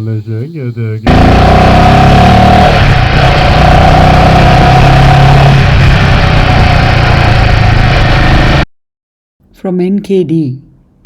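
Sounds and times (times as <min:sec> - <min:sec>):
loud rushing noise: 0:01.1 - 0:08.6
motorcycle engine running: 0:01.1 - 0:08.7.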